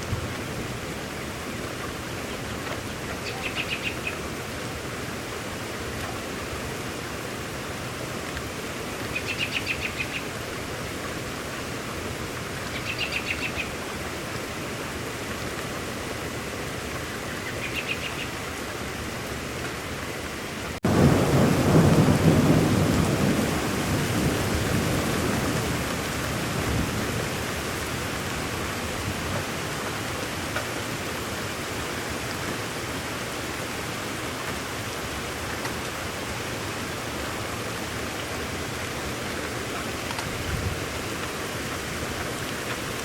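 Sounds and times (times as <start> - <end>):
steady rain: 0.0 - 43.0
bird trilled call: 3.2 - 4.2, 9.2 - 10.2, 12.7 - 13.7, 17.4 - 18.4
rolling thunder rumble: 20.8 - 25.9, 40.2 - 42.3.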